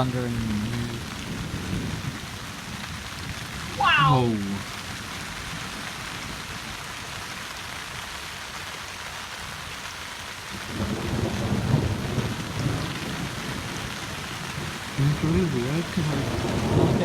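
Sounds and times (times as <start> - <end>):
rolling rumble of thunder: 0.0 - 3.8, 10.6 - 17.0
heavy rain falling: 0.0 - 17.0.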